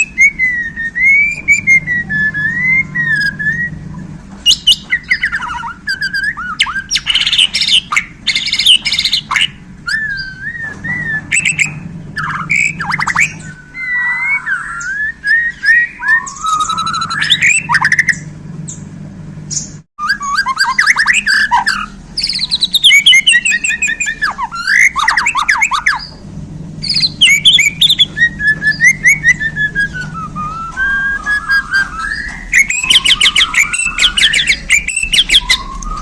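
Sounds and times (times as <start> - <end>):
songbird singing varied song: 4.4 - 18.8, 19.5 - 26.2, 26.8 - 36.0.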